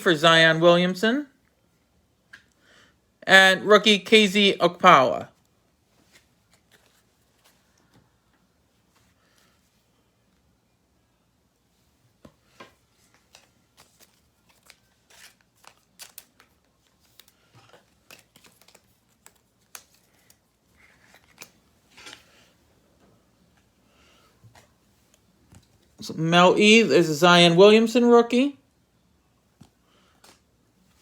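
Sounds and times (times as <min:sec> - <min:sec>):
trading cards being handled: 0:06.0 - 0:08.0, 0:12.2 - 0:22.4, 0:29.6 - 0:31.0
packaging rustling: 0:13.0 - 0:22.4.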